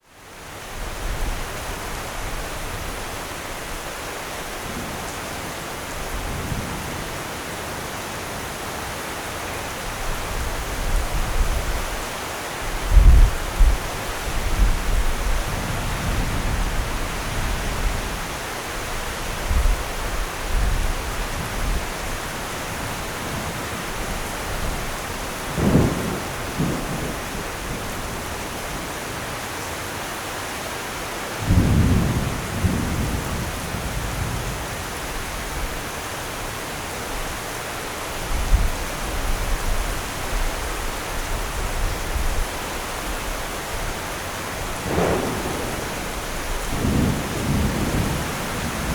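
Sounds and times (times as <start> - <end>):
steady rain falling: 0.0 - 48.9
thunder rumbling: 22.6 - 28.9, 31.4 - 34.8, 44.5 - 48.9.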